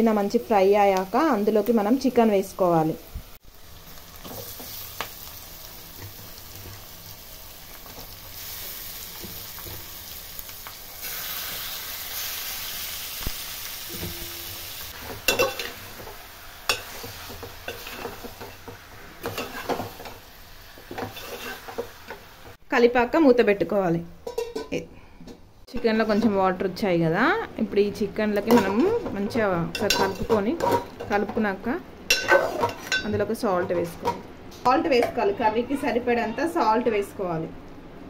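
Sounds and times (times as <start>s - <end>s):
chicken sizzling in hot oil: 2.8s - 22.6s
spoon clinking and scraping pot: 15.1s - 15.8s, 19.2s - 20.2s, 20.9s - 21.9s, 24.2s - 24.8s, 28.5s - 31.3s, 32.1s - 34.2s.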